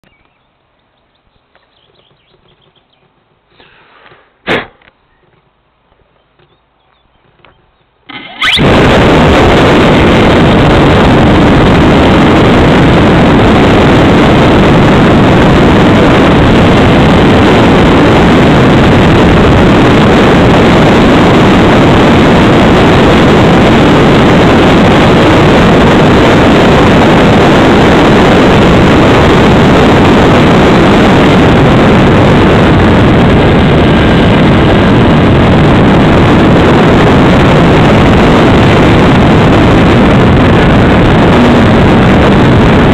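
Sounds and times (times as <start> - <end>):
electric motor and propeller: 7.3 - 20.5
wind rushing past: 8.1 - 42.9.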